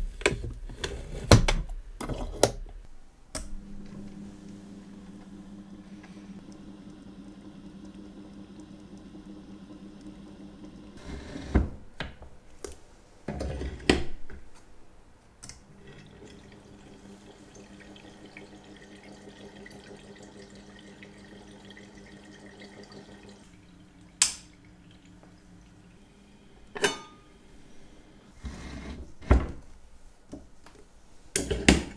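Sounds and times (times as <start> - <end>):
machine motor humming: 3.5 - 11.1.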